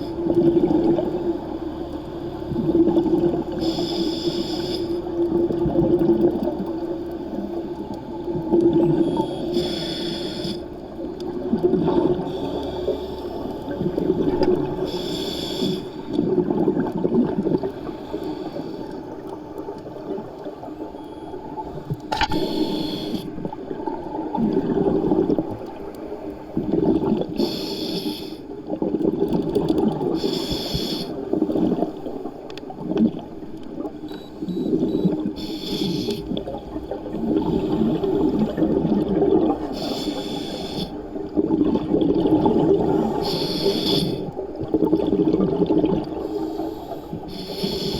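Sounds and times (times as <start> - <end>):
hissing inhales: 3.6 - 5.0, 9.2 - 10.7, 14.9 - 16.0, 22.3 - 23.3, 27.4 - 28.5, 30.2 - 31.2, 35.4 - 36.3, 39.7 - 41.0, 42.9 - 44.3, 46.2 - 47.9
bubbling exhales: 26.5 - 47.9.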